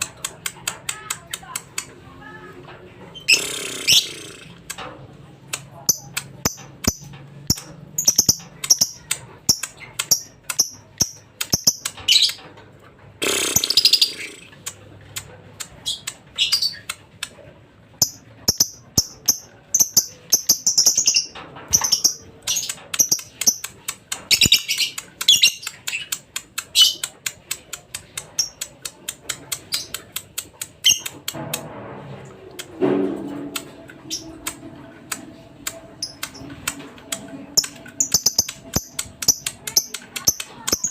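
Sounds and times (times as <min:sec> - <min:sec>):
lovebird chattering: 0:03.2 - 0:04.6, 0:05.8 - 0:12.4, 0:13.2 - 0:14.6, 0:18.0 - 0:31.1, 0:37.6 - 0:40.9.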